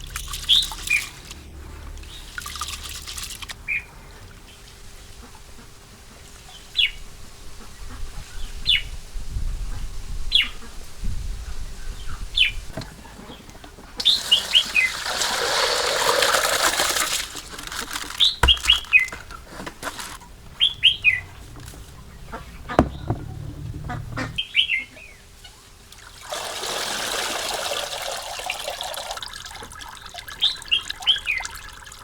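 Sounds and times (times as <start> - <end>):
small birds chirping: 20.2 - 25.3.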